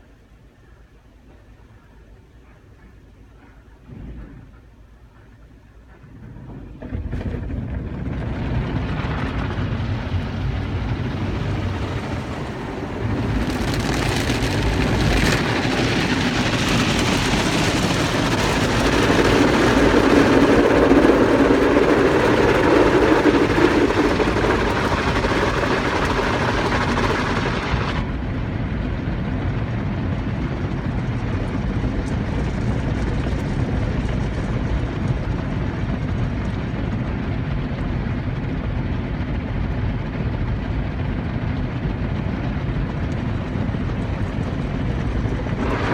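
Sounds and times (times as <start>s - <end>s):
car wash machinery rumbling: 6.1s - 28.8s, 43.0s - 45.9s.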